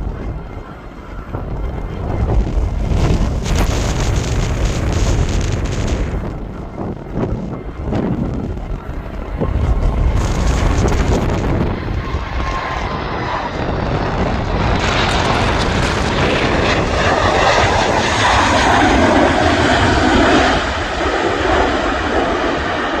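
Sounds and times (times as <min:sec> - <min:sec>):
jet airliner engines roaring: 0:00.0 - 0:23.0
wind buffeting microphone: 0:00.0 - 0:23.0.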